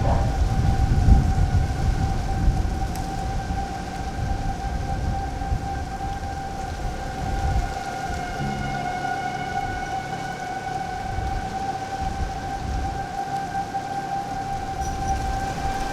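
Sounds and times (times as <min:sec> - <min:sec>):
low rumble: 0:00.0 - 0:02.8
steady rain: 0:00.0 - 0:15.9
storm warning siren: 0:00.0 - 0:15.9.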